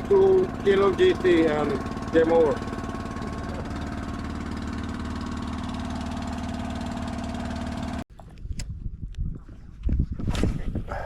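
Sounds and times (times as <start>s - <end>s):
boat engine running: 0.0s - 8.4s.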